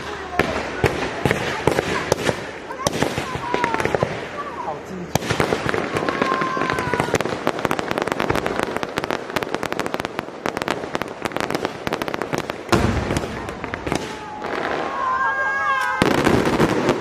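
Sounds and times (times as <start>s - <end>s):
fireworks crackling pops: 0.0s - 17.0s
deep firework boom: 12.7s - 15.1s.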